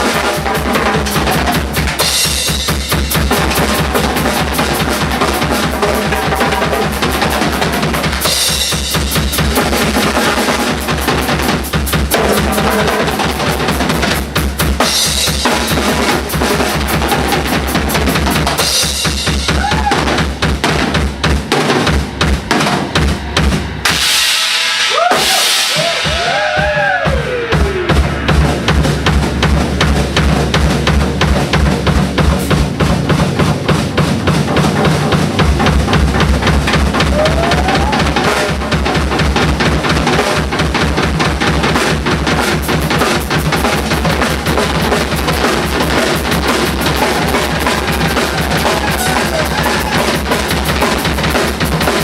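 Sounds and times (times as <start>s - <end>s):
double bass drum strokes: 0.0s - 52.0s
snare drum: 0.0s - 52.0s
cymbal crashes: 18.6s - 31.0s.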